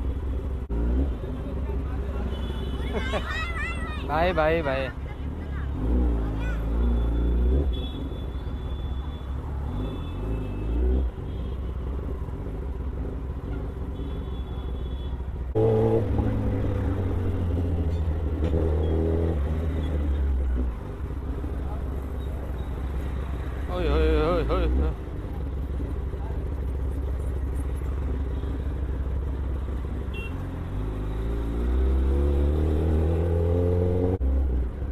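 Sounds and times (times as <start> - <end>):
motorcycle engine drone: 15.4 - 34.9.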